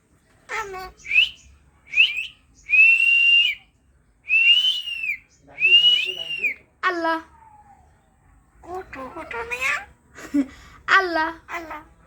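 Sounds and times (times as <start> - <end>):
pet bird whistling: 0.9 - 3.6, 4.3 - 6.6.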